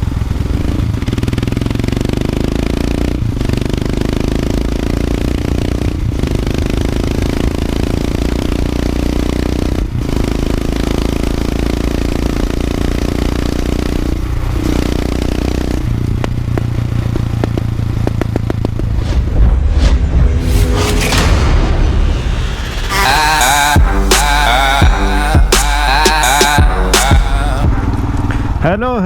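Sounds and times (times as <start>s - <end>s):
single-cylinder motorcycle engine: 0.0s - 18.8s.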